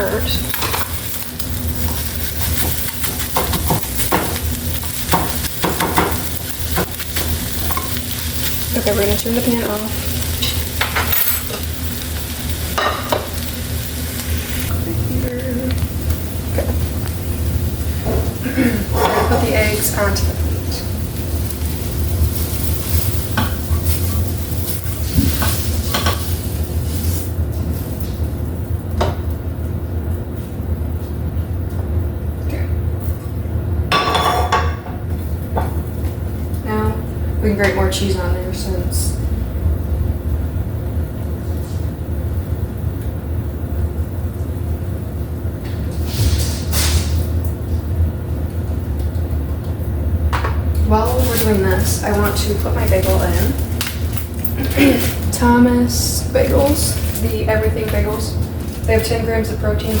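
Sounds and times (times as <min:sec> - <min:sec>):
eggs sizzling in a frying pan: 0:00.0 - 0:29.3, 0:41.0 - 1:00.0
utensil scraping frying pan: 0:17.9 - 0:27.4.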